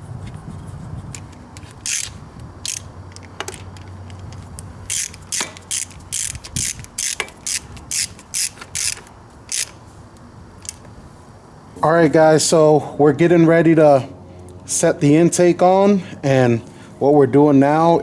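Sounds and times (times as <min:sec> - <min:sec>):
socket ratchet clicking: 0:01.2 - 0:09.8, 0:10.6 - 0:10.8.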